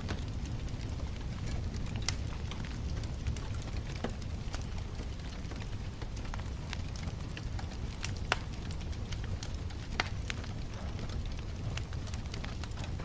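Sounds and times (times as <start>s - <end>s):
bonfire crackling and snapping: 0.0s - 13.0s
low fire rumble: 0.0s - 13.0s.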